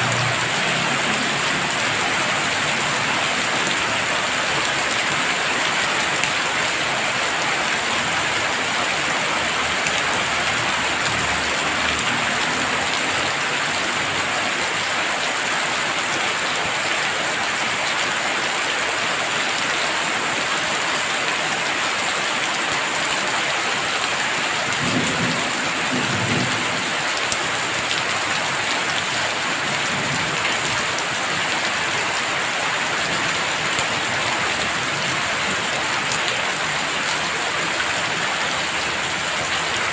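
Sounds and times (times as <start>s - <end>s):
heavy rain hissing: 0.0s - 16.5s.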